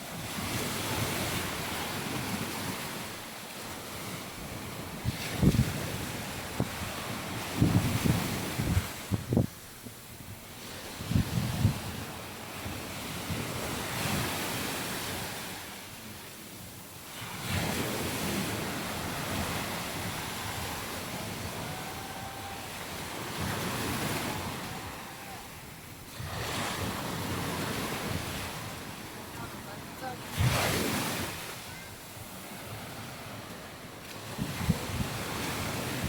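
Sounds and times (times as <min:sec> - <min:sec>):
sea waves breaking: 0:00.0 - 0:09.2, 0:10.5 - 0:36.0
wind buffeting microphone: 0:04.4 - 0:15.4, 0:17.4 - 0:31.5, 0:34.2 - 0:36.0.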